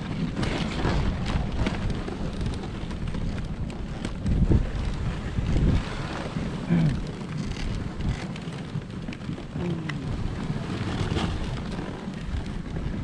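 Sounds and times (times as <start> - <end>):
sled knocks and jolts: 0.0 - 13.0
wind buffeting microphone: 0.0 - 13.0.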